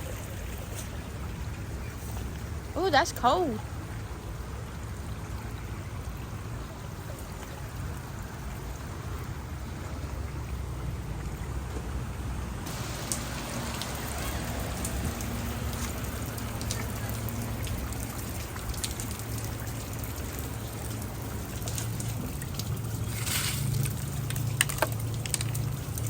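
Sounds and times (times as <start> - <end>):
low steady rumble: 0.0 - 26.0
rain falling: 0.0 - 26.0
drops ticking on a surface: 13.0 - 23.0, 23.7 - 26.0.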